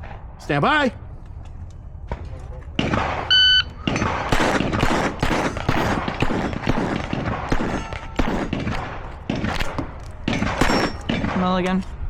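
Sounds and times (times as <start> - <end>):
pistol shots: 2.8 - 11.8
steel targets ringing: 7.5 - 8.7, 10.4 - 11.1.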